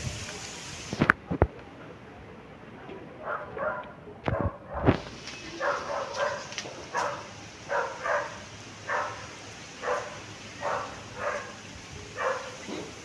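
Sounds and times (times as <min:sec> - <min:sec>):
dog barking: 0:03.2 - 0:12.9.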